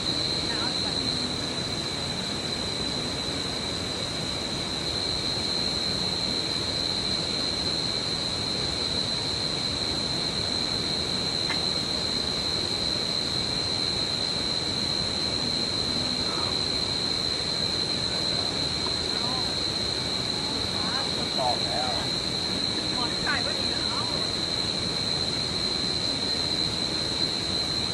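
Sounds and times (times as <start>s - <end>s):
background hiss: 0.0s - 27.9s
insects droning: 0.0s - 27.9s.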